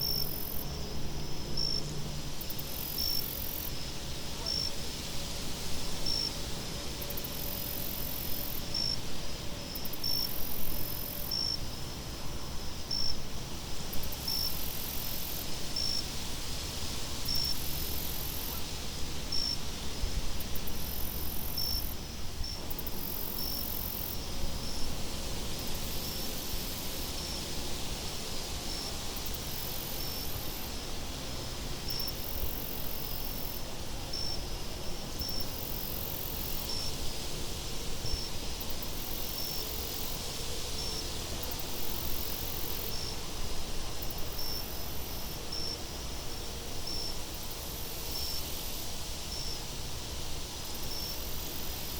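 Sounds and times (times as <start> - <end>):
insects chirping: 0.0 - 4.7, 20.5 - 51.9
high insect trills: 0.0 - 51.9.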